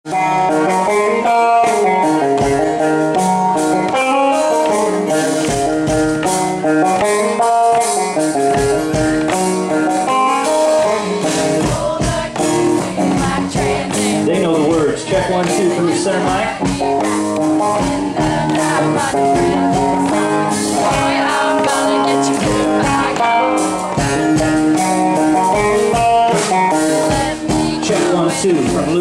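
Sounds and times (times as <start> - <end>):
guitar: 0.0 - 29.0
live band playing: 0.0 - 29.0
percussive hits: 1.7 - 29.0.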